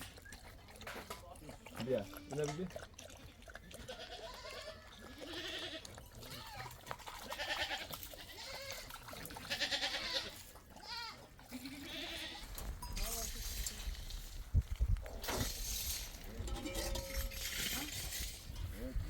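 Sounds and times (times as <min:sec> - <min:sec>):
goats bleating: 0:03.2 - 0:12.6.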